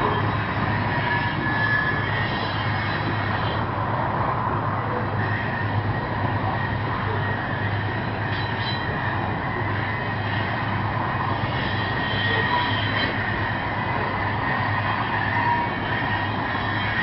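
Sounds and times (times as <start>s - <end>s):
diesel locomotives under power: 0.0s - 17.0s
freight train heavy rumble: 0.0s - 17.0s.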